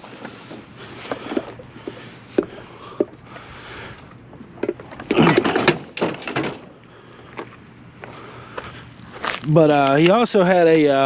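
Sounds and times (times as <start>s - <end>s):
objects knocking and clattering: 4.6s - 6.7s.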